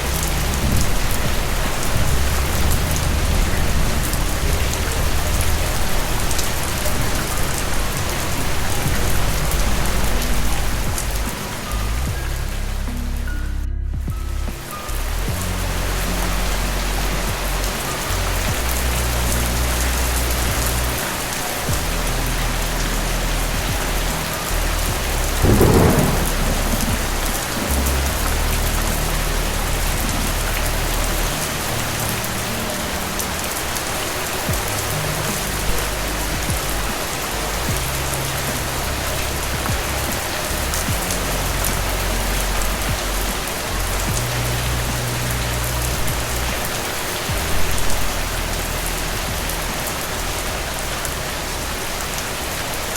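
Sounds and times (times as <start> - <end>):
heavy rain falling: 0.0 - 52.9
loud thunderclap: 24.9 - 29.3.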